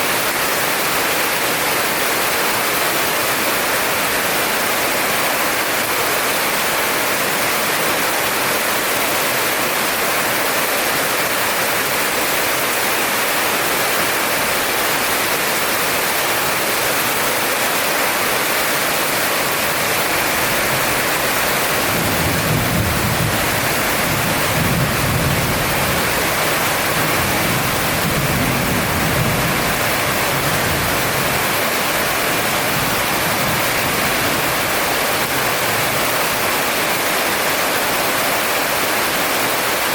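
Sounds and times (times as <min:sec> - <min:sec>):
heavy rain pouring: 0:00.0 - 0:39.9
thunder rumbling: 0:21.8 - 0:34.6.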